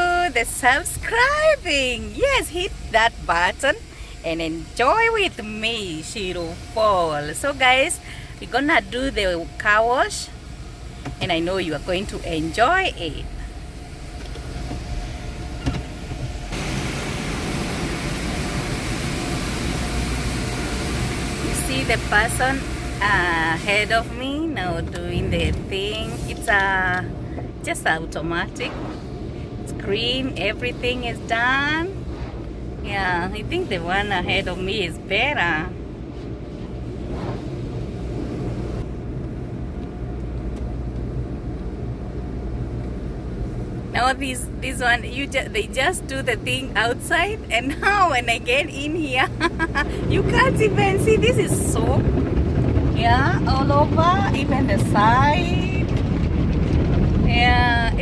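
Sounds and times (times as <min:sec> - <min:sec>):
rushing hiss: 0:16.4 - 0:24.0.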